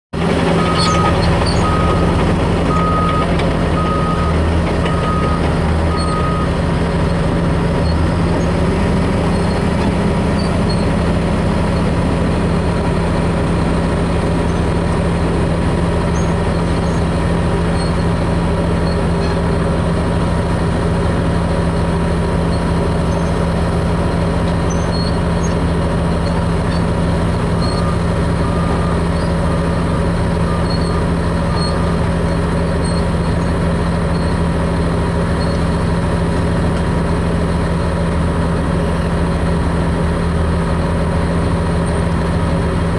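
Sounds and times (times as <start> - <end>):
bulldozer diesel engine running: 0.1 - 42.9
reversing alarm beeping: 0.6 - 6.6, 27.6 - 32.0.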